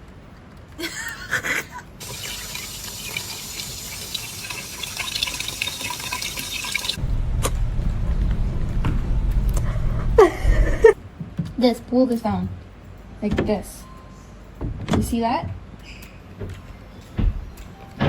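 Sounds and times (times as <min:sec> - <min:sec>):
water running and splashing: 0:02.0 - 0:07.0
low rumble: 0:07.0 - 0:11.0.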